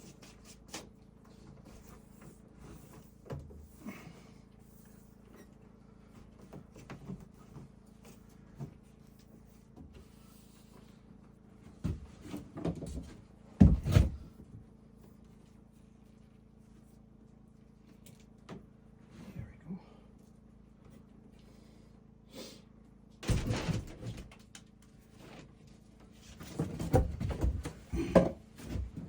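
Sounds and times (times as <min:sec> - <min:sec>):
knocks and clunks: 0:11.8 - 0:14.4, 0:23.2 - 0:24.4.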